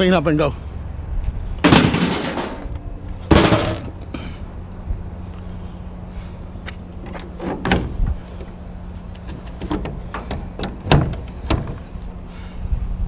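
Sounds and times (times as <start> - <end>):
steady low hum: 0.0 - 13.0
scrap metal knocks and clatters: 1.6 - 4.0.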